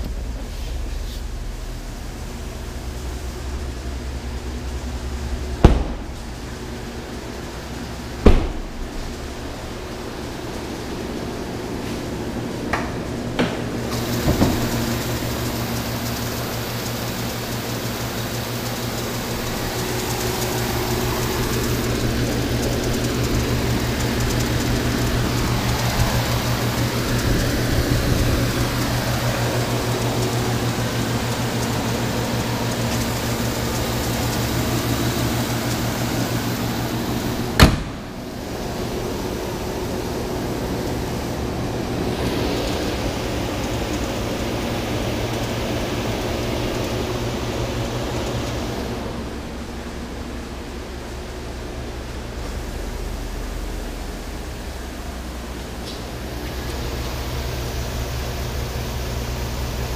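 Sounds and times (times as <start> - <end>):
car engine idling: 0.0 - 59.9
sharp bang: 5.6 - 6.5, 8.2 - 9.4, 37.6 - 38.2.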